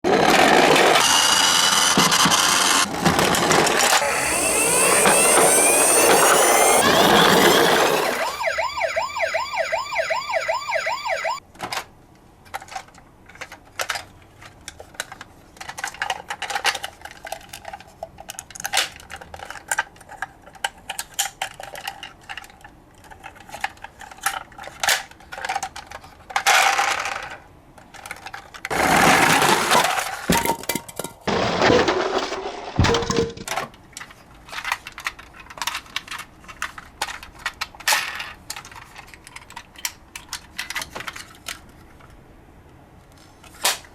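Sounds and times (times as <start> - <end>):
toy cars clicking and clattering: 0.1 - 8.4, 11.6 - 31.2, 33.4 - 42.2
fast warbling siren: 4.0 - 11.4.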